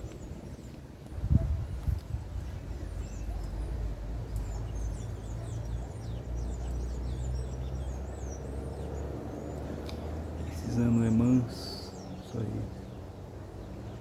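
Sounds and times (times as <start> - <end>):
birds chattering: 2.4 - 14.0.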